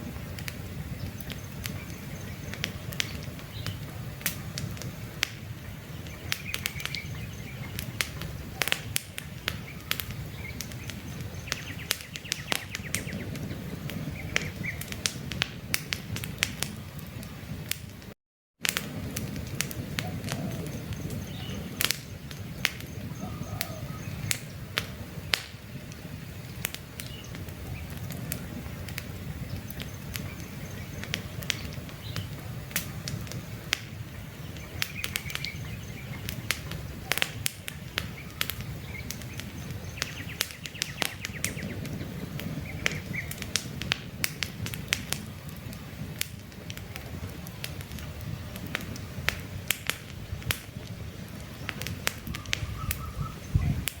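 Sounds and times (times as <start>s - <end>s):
campfire crackling and popping: 0.0s - 54.0s
faint bird chirps: 22.6s - 24.3s, 52.3s - 53.9s.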